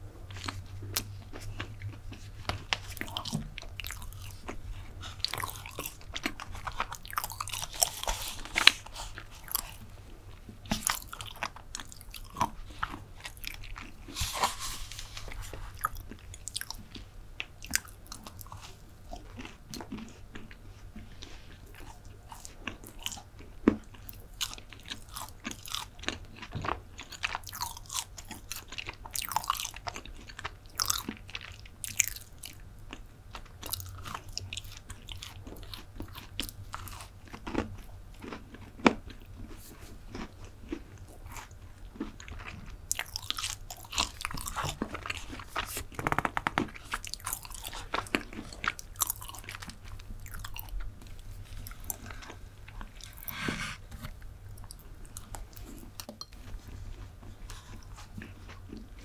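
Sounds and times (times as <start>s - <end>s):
chewing brownie: 0.2s - 59.0s.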